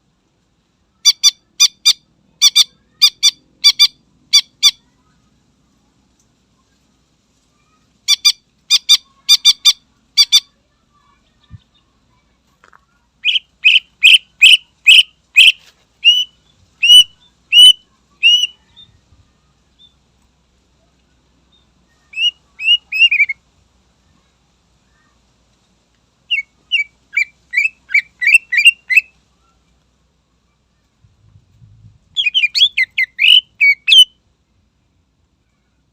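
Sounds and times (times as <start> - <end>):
bird singing: 13.2 - 19.0, 21.5 - 23.4, 26.3 - 29.6, 32.2 - 34.2.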